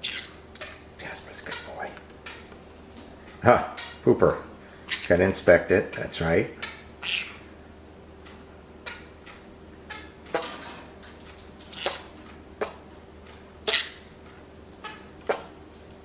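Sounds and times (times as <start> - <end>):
parrots chirping: 0.0 - 2.6, 3.2 - 5.4, 6.6 - 7.6, 8.2 - 10.5, 11.6 - 15.5.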